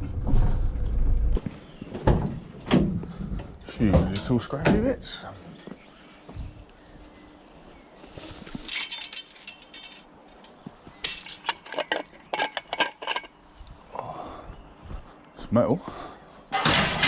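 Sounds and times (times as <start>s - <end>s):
scrap metal clinking: 8.5s - 13.4s.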